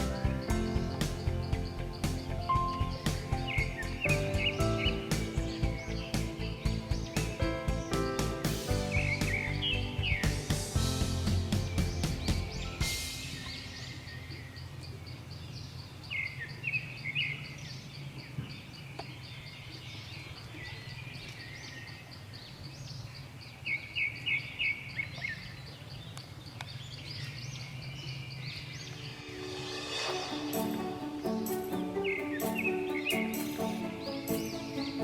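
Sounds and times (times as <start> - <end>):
lower bird notes: 0.0 - 15.3, 28.5 - 35.0
birds chirping: 0.0 - 35.0.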